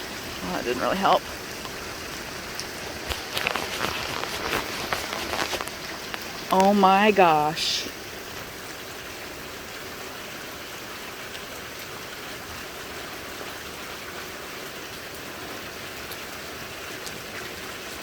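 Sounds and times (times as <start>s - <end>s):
steady rain: 0.0s - 18.0s
faint hail ticks: 0.2s - 8.6s.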